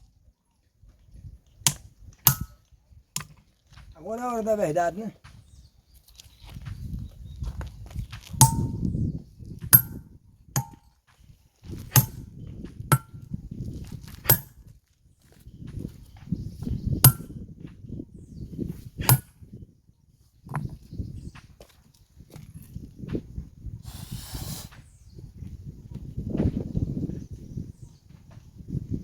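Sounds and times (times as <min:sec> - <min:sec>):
hammer clanging on steel chisel: 0:01.7 - 0:02.6, 0:08.4 - 0:08.8, 0:09.8 - 0:10.0, 0:10.6 - 0:10.8, 0:12.0 - 0:12.2, 0:14.3 - 0:14.5, 0:17.1 - 0:17.3, 0:19.1 - 0:19.3.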